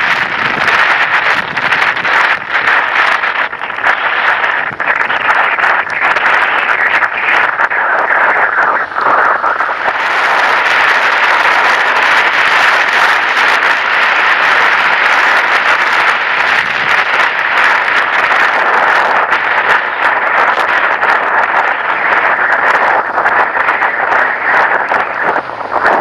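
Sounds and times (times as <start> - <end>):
rain on wet road: 0.0 - 26.0.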